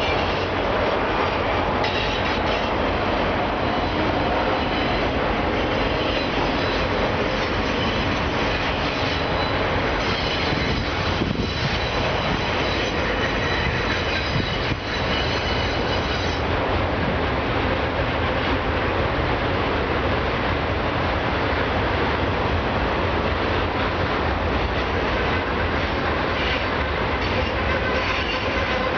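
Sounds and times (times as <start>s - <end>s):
freight train wheels rumbling: 0.0s - 28.9s
high wheel squeal: 1.8s - 2.8s, 3.6s - 16.5s, 26.4s - 28.9s.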